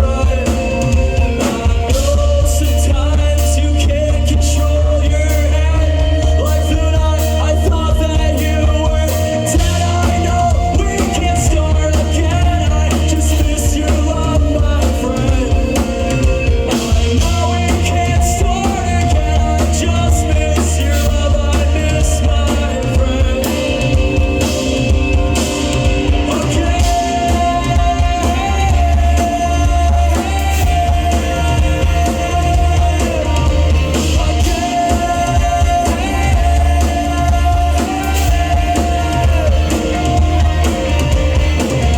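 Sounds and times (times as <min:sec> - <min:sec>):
drum kit: 0:00.0 - 0:41.9
guitar: 0:00.0 - 0:41.9
heavy bass line: 0:00.0 - 0:41.9
lead vocal singing: 0:00.0 - 0:41.9.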